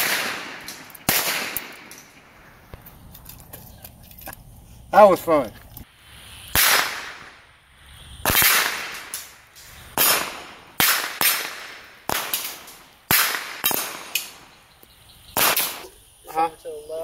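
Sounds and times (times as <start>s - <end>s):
gunshots: 0.0s - 2.4s, 6.5s - 7.4s, 8.2s - 14.5s, 15.4s - 15.9s.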